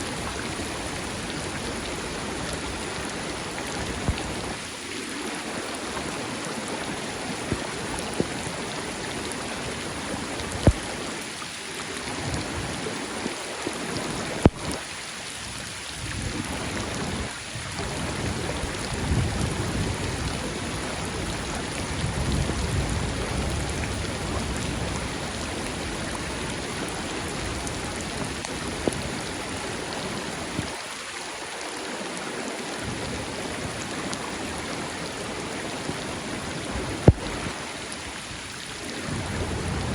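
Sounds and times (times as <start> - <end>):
rain falling: 0.0 - 39.9
rushing river: 0.0 - 39.9
thunder rumbling: 16.2 - 29.2, 39.0 - 39.9.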